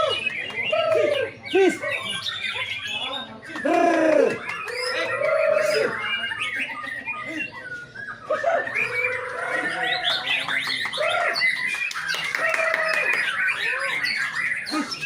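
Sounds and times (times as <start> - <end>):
songbirds singing whistled phrases: 0.0 - 15.0.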